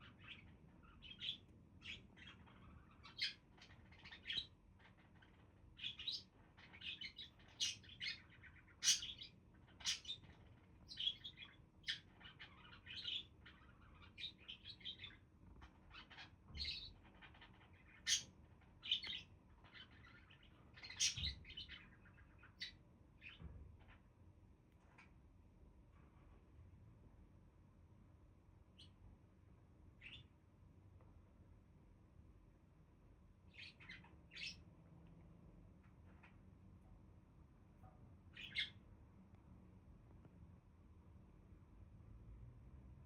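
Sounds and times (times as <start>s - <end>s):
budgerigars chirping: 0.0s - 15.2s, 15.9s - 23.4s, 33.5s - 34.6s, 38.3s - 38.8s.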